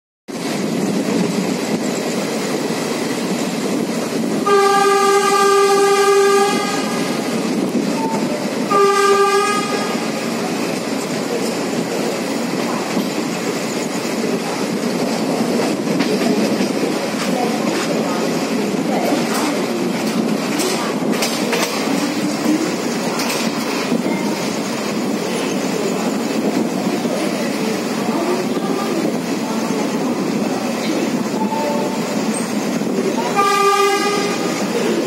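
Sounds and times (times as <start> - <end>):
train wheel and rail noise: 0.3 - 35.0
train horn blasts: 4.4 - 7.2, 8.0 - 10.2, 33.2 - 34.6.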